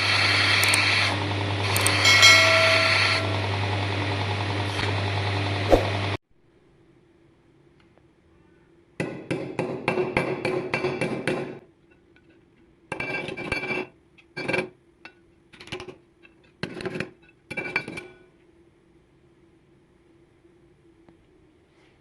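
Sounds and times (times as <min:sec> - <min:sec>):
hammer striking metal: 0:01.8 - 0:03.5.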